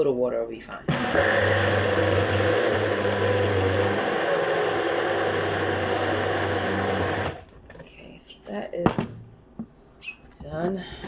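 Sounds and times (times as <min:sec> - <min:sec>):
blender running: 0:00.9 - 0:07.4.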